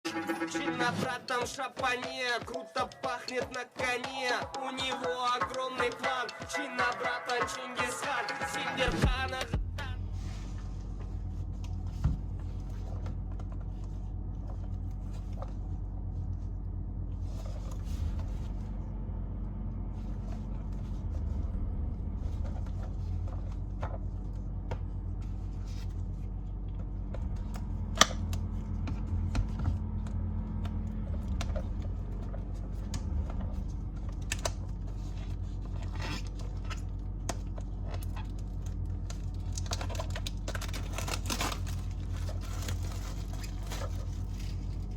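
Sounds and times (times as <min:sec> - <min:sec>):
steady low hum: 0:09.0 - 0:44.9.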